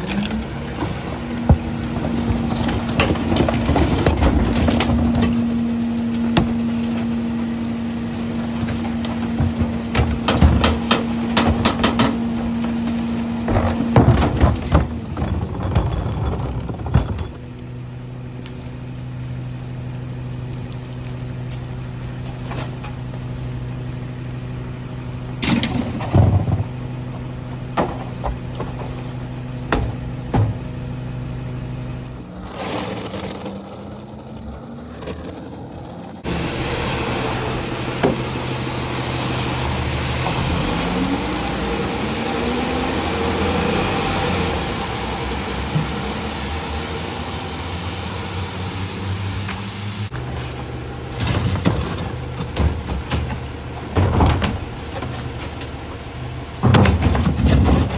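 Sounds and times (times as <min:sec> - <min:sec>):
knocks and clanks of trash: 0:00.0 - 0:07.2, 0:08.2 - 0:17.5, 0:25.3 - 0:31.0, 0:50.1 - 0:57.9
truck diesel engine running: 0:00.0 - 0:57.9.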